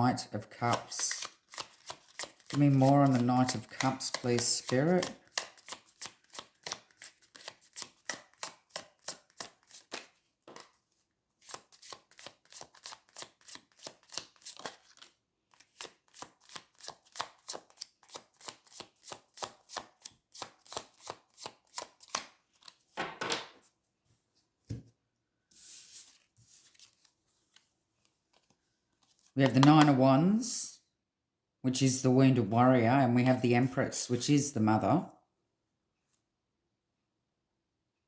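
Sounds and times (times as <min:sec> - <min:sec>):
cards being shuffled: 0:00.6 - 0:10.8, 0:11.4 - 0:23.7, 0:25.6 - 0:27.7
cards sliding: 0:00.6 - 0:10.8, 0:11.4 - 0:22.8, 0:25.5 - 0:27.7.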